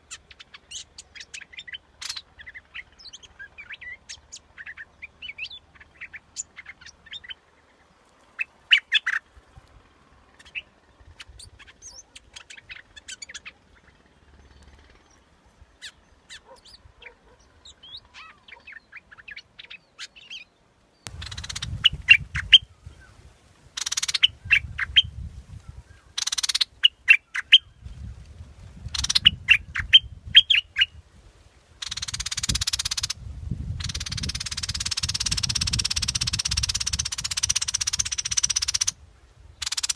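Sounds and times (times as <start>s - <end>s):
bird chirping song: 0.0s - 31.0s, 31.6s - 39.9s
low rumble and hiss: 0.0s - 39.9s.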